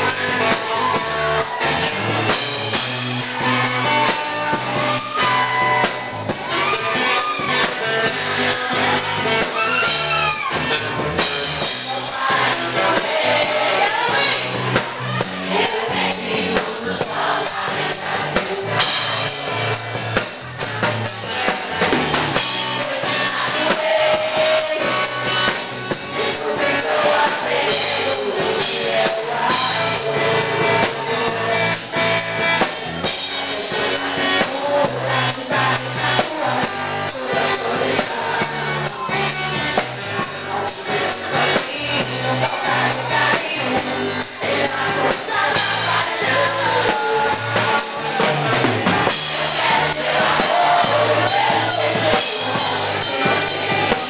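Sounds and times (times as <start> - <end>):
band playing a song: 0.0 - 54.0
person singing: 21.2 - 32.0, 33.3 - 39.4, 40.2 - 54.0.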